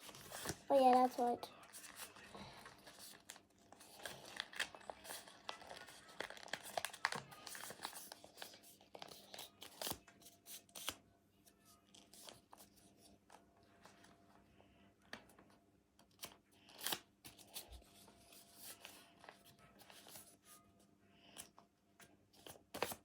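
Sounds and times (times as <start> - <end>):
paper being folded and creased: 0.0 - 11.0.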